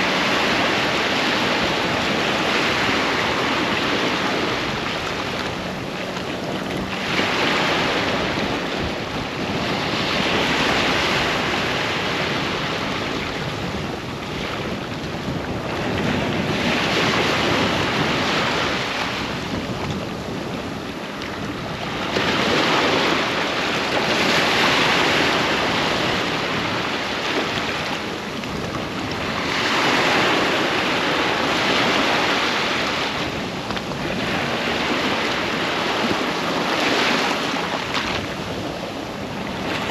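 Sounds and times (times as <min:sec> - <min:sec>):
ocean waves breaking on beach: 0:00.0 - 0:39.9
wind on microphone: 0:00.0 - 0:39.9.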